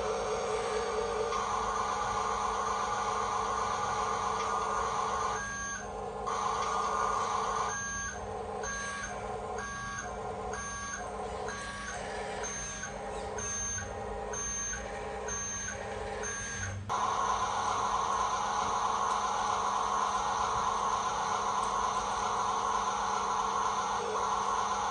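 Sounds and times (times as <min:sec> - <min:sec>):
electric motor whir: 0:00.0 - 0:09.2, 0:14.7 - 0:24.9
two-tone reversing beeps: 0:00.6 - 0:16.8.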